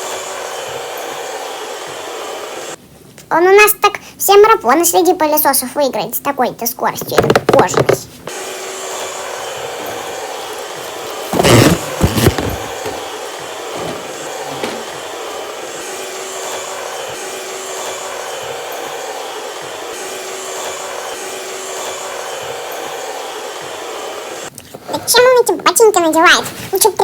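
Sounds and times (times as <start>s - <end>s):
robot vacuum cleaner whirring: 0.0s - 2.8s, 8.3s - 24.5s
loud knocks: 11.3s - 13.1s.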